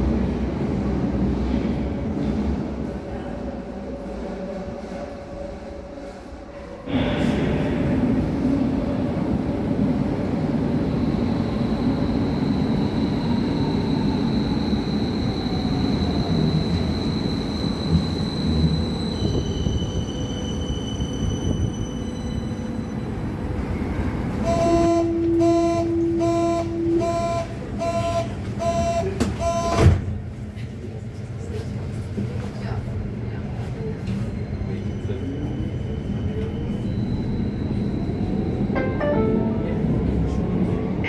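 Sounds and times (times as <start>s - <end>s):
long signal tone: 24.4s - 29.8s
short signal beeps: 24.4s - 29.8s.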